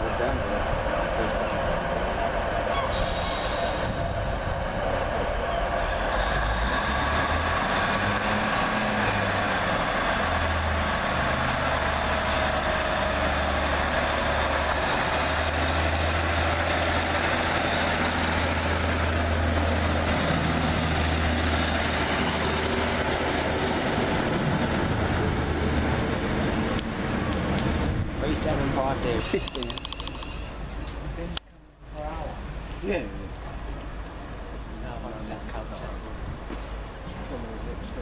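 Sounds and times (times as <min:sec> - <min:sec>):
train rumbling: 0:00.0 - 0:31.2.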